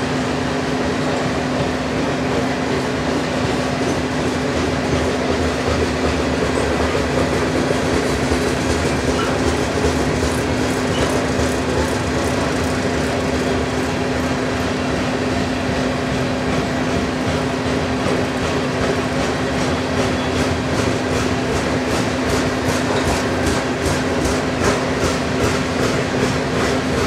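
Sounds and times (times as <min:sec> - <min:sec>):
freight train wheels clattering: 0:00.0 - 0:27.0.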